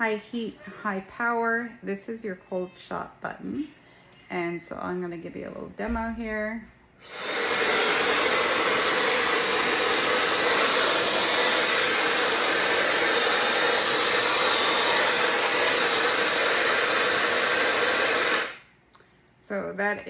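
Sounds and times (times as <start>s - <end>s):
hair dryer blowing: 7.0s - 18.7s.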